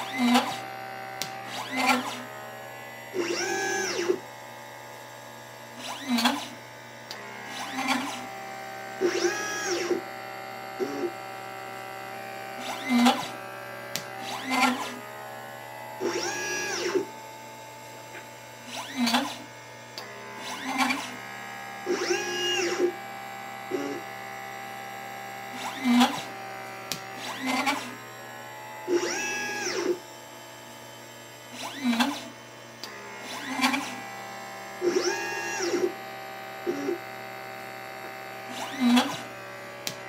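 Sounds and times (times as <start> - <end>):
stepper motors whining: 0.0 - 30.2, 31.1 - 40.0.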